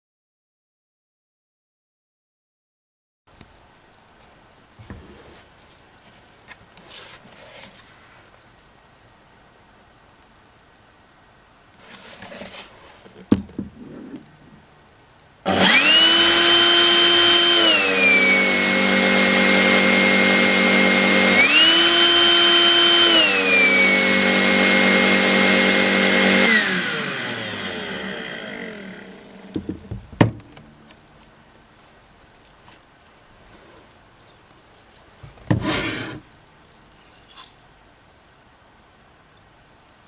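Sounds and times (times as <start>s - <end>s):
vacuum cleaner motor whining: 15.5s - 29.9s.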